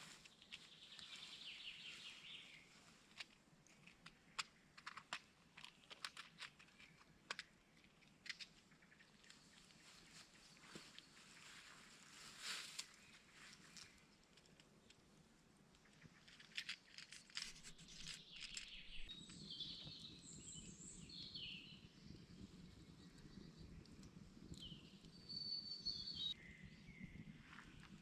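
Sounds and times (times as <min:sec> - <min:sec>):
faint clicks and crackles: 0:00.0 - 0:01.3, 0:02.6 - 0:19.2, 0:22.6 - 0:25.2
low steady background noise: 0:00.0 - 0:28.0
songbird chirping: 0:00.0 - 0:28.0.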